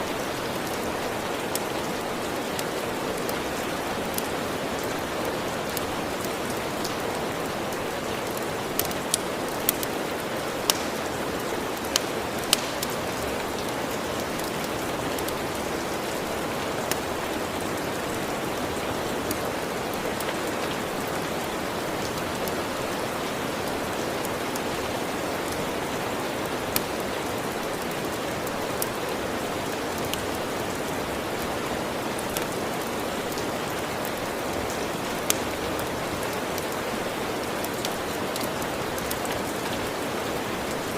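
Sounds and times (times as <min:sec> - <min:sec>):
steady rain falling: 0:00.0 - 0:40.9
wood fire crackling and popping: 0:00.5 - 0:21.1, 0:26.6 - 0:29.1, 0:31.9 - 0:36.8.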